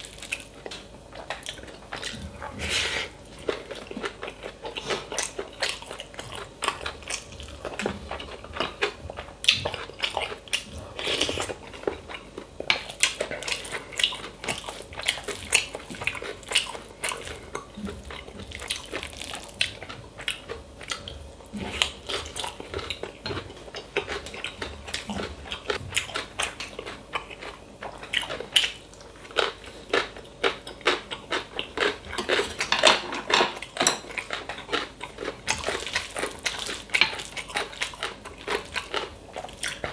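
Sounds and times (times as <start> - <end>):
chewing and biting food: 0.0 - 39.9
utensils clinking on dishes: 32.2 - 34.4.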